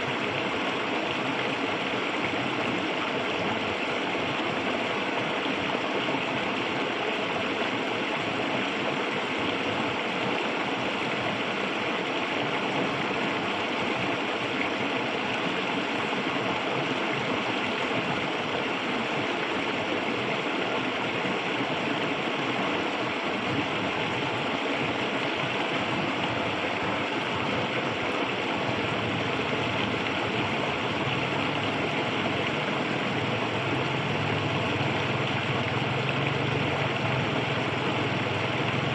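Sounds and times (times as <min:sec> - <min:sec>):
river water rushing over rocks: 0:00.0 - 0:38.9.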